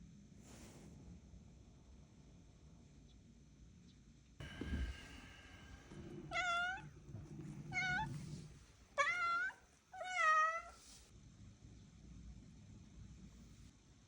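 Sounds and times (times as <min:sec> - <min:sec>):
cat meowing: 0:06.2 - 0:08.3, 0:09.0 - 0:10.9.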